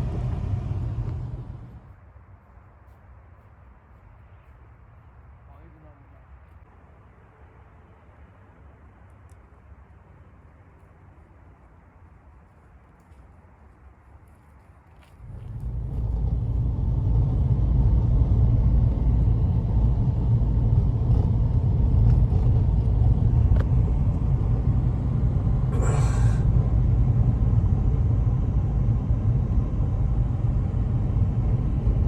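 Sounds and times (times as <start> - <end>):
blizzard wind on microphone: 0.0 - 1.9, 15.2 - 32.0.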